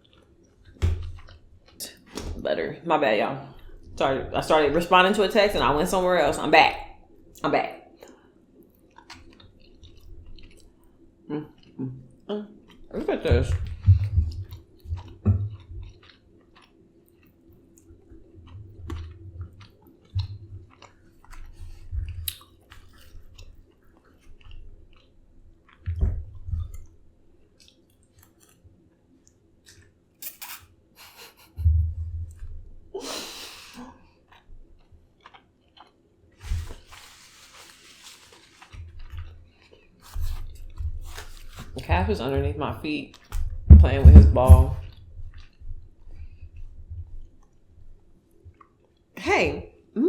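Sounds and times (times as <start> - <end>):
chewing and biting: 0.0 - 2.1, 8.0 - 41.8, 43.1 - 43.6, 44.8 - 49.1
low thumps: 13.3 - 15.8, 31.6 - 32.6, 43.4 - 45.4
wet mouth clicks: 18.6 - 24.6, 29.2 - 36.0
rustling: 36.4 - 42.2.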